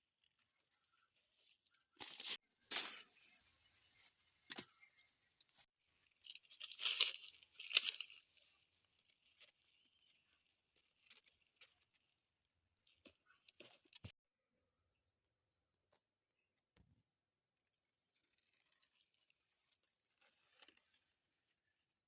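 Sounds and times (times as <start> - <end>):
plant material crackling: 6.2 - 10.3.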